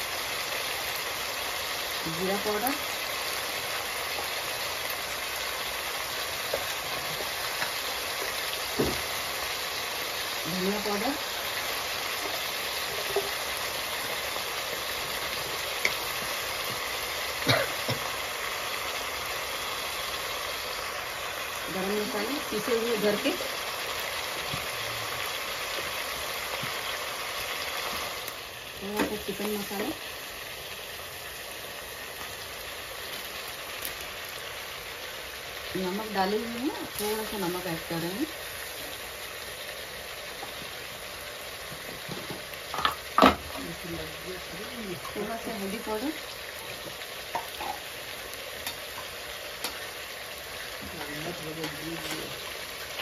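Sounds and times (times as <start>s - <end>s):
food sizzling in oil: 0.0s - 53.0s
knock: 8.8s - 9.0s.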